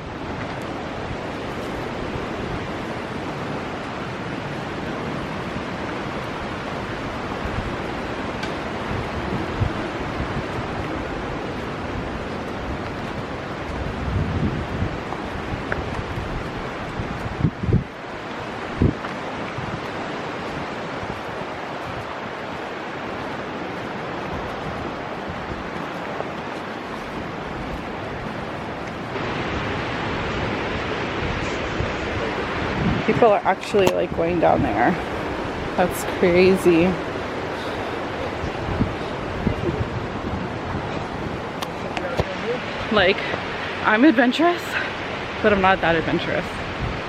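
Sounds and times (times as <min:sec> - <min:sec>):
river rushing roar: 0:00.0 - 0:47.0
wind thump on microphone: 0:07.4 - 0:22.6, 0:23.2 - 0:35.3, 0:38.2 - 0:43.5.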